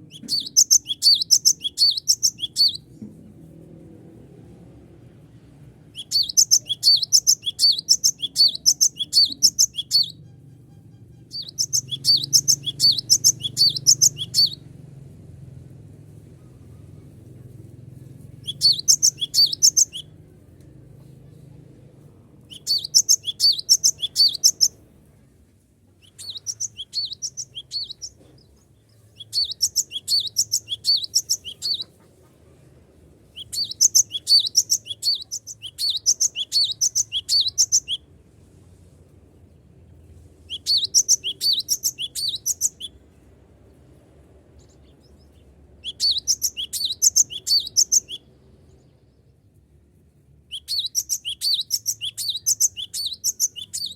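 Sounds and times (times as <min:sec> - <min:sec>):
bird singing high-pitched notes: 0:00.1 - 0:02.9, 0:06.0 - 0:14.6, 0:18.4 - 0:20.1, 0:22.5 - 0:24.8, 0:26.0 - 0:28.2, 0:29.2 - 0:31.9, 0:33.4 - 0:38.0, 0:40.5 - 0:43.0, 0:45.8 - 0:48.3, 0:50.5 - 0:53.9.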